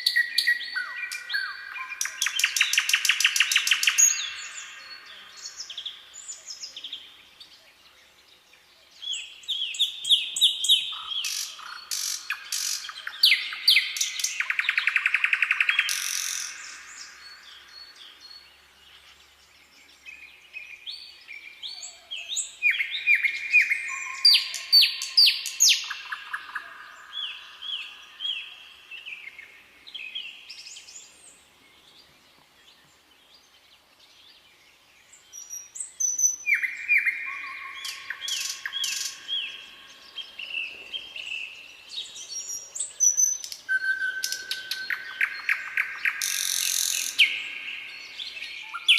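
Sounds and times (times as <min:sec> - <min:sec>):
songbirds singing: 0:00.0 - 0:48.9.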